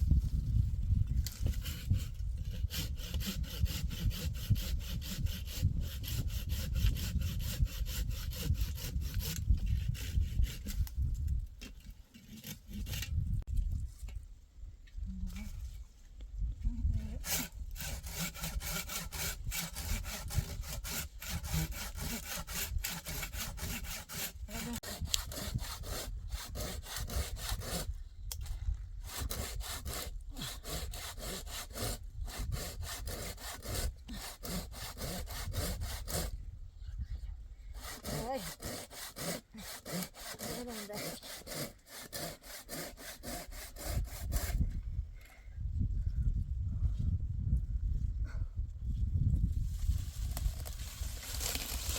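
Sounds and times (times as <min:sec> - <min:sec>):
hand saw cutting wood: 0:01.2 - 0:11.0, 0:11.7 - 0:13.2, 0:17.1 - 0:28.0, 0:29.0 - 0:36.4, 0:37.8 - 0:44.6, 0:50.2 - 0:51.9.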